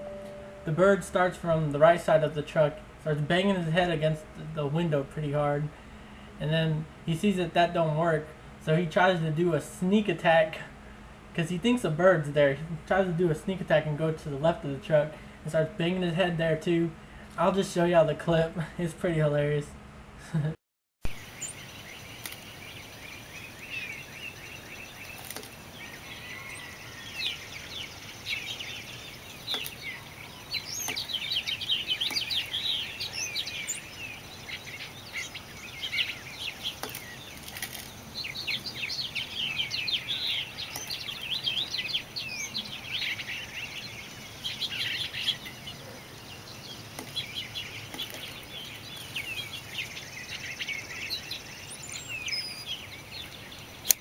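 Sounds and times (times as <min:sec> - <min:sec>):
small birds chirping: 0:21.0 - 0:54.0.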